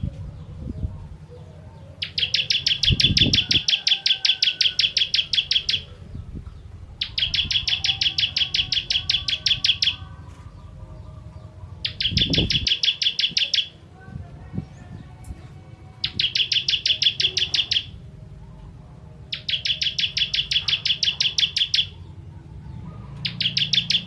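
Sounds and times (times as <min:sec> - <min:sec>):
bird singing fast high trills: 0:02.0 - 0:05.9, 0:07.0 - 0:10.0, 0:11.8 - 0:13.8, 0:16.0 - 0:18.0, 0:19.3 - 0:22.0, 0:23.2 - 0:24.0.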